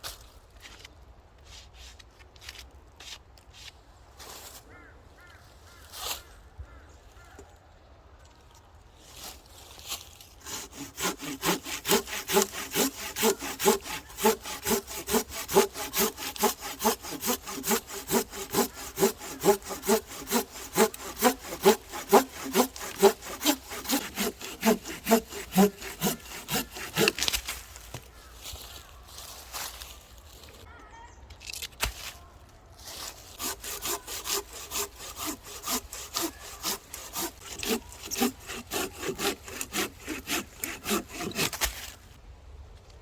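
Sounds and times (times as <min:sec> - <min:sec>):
hand saw cutting firewood: 0:10.4 - 0:28.1, 0:32.9 - 0:42.1.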